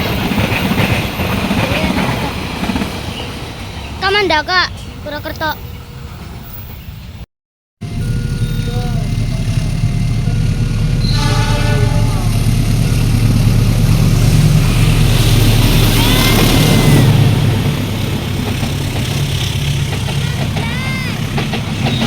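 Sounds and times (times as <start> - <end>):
diesel locomotive engine drone: 0.0 - 7.2, 7.8 - 22.0
multi-tone train horn: 7.9 - 17.8.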